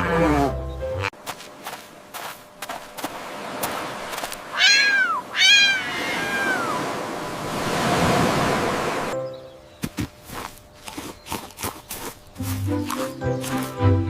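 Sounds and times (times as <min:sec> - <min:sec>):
cat meowing: 0:04.5 - 0:06.8.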